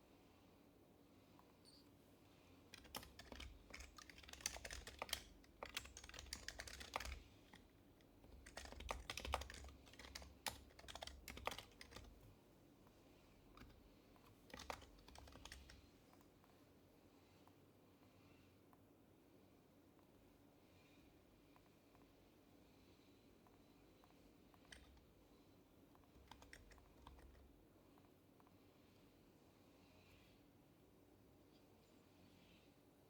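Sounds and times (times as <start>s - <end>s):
keyboard typing clacks: 2.7s - 7.7s, 8.3s - 12.3s, 13.6s - 15.8s, 26.1s - 27.4s.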